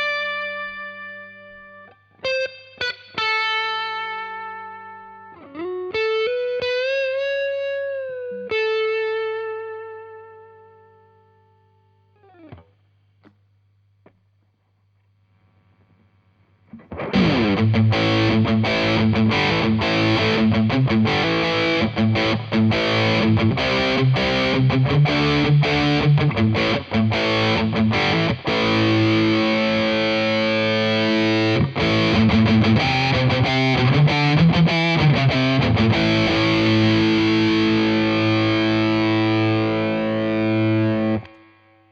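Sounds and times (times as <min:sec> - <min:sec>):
distorted electric guitar chords: 0:00.0 - 0:12.7, 0:15.6 - 0:41.9
faint amp hum: 0:09.7 - 0:41.9.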